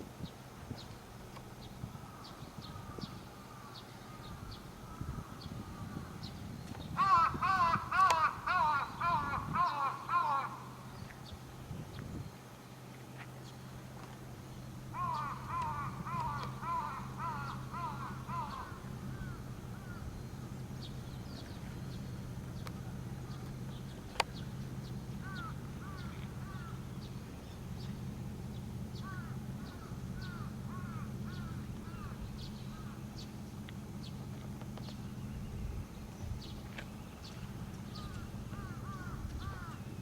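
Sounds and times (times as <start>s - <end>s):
steady low hum: 0.0s - 40.0s
birds calling: 0.2s - 40.0s.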